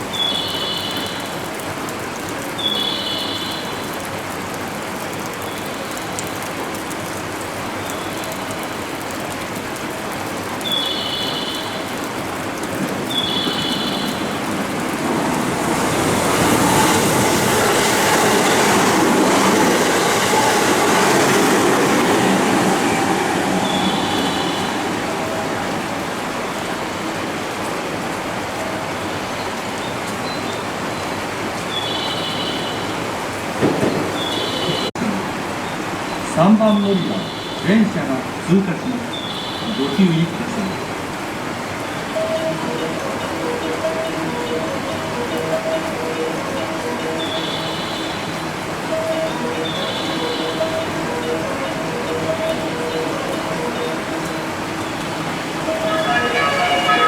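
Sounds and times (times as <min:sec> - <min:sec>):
electric train rolling through station: 0:00.0 - 0:57.0
short high-pitched tones: 0:55.6 - 0:57.0.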